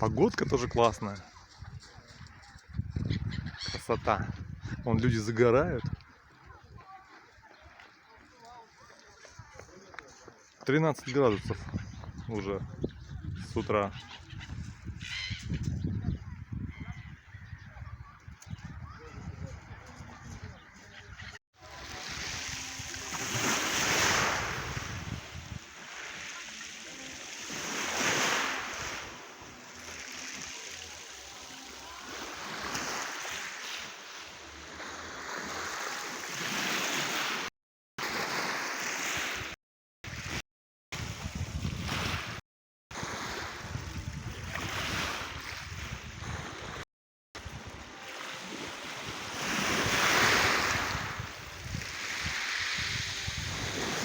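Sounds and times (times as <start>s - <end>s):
waves breaking on shore: 21.6s - 46.8s, 47.4s - 54.0s.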